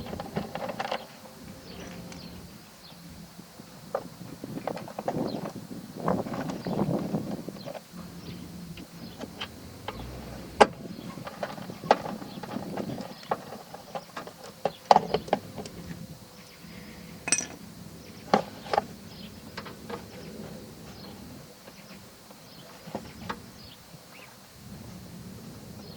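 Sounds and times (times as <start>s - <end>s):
hand tools clicking and knocking: 17.3s - 17.6s
short metallic ring: 17.3s - 17.6s.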